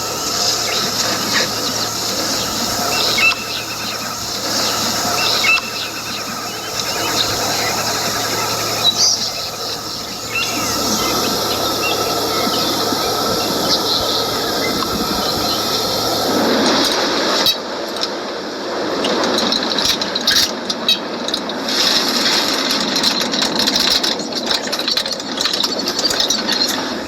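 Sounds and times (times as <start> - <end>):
birds chirping: 0.0 - 17.5
insect drone: 0.0 - 27.0.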